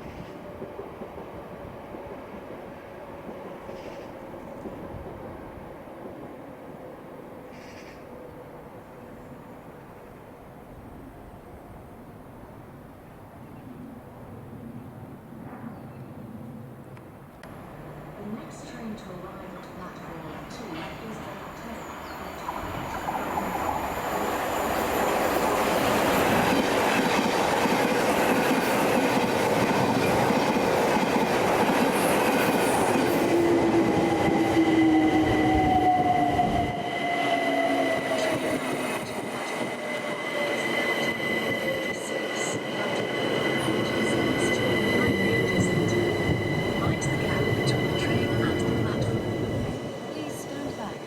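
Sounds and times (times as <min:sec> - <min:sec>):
train wheel and rail rumble: 0:00.0 - 0:51.0
train braking whine: 0:32.8 - 0:51.0
steady high tone: 0:39.3 - 0:51.0.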